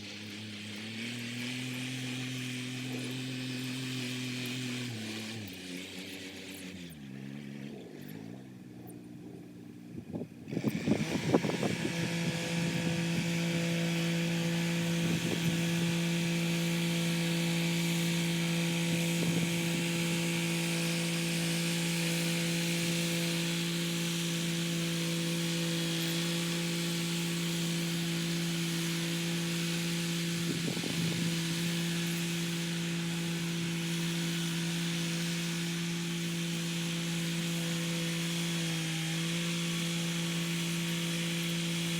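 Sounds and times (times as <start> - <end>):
tractor engine running: 0.0 - 41.9
rotary tiller clattering: 10.5 - 41.9.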